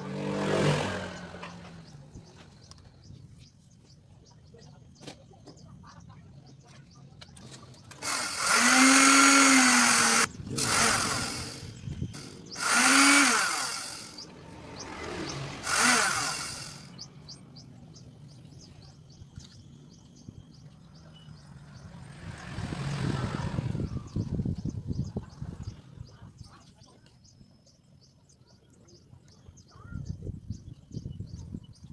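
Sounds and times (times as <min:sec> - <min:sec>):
drill motor whining: 0:07.9 - 0:17.0.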